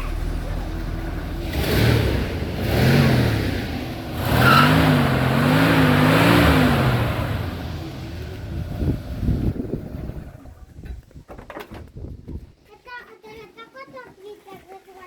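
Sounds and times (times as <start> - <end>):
car engine revving: 0.0 - 10.5.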